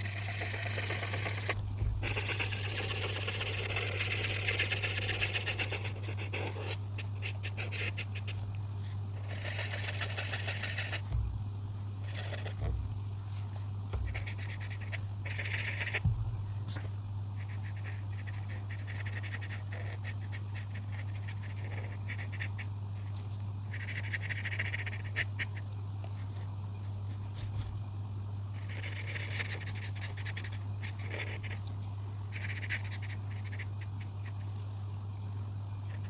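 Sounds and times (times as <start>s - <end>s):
coloring tool scratching paper: 0.0s - 8.4s, 9.1s - 11.2s, 12.1s - 12.7s, 14.0s - 16.0s, 16.7s - 26.4s, 28.6s - 31.7s, 32.3s - 34.5s
steady low hum: 0.0s - 36.0s.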